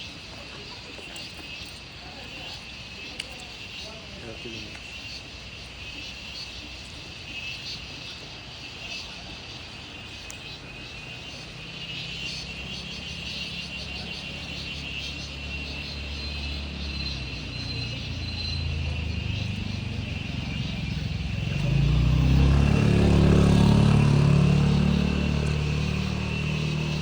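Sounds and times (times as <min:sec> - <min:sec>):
insects chirring: 0:00.0 - 0:27.0
low engine hum: 0:10.6 - 0:27.0.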